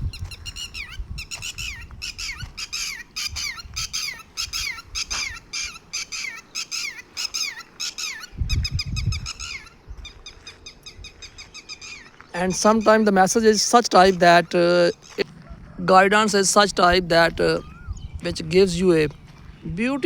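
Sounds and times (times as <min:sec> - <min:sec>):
birds chirping: 0:00.0 - 0:20.0
low rumble: 0:15.1 - 0:19.8.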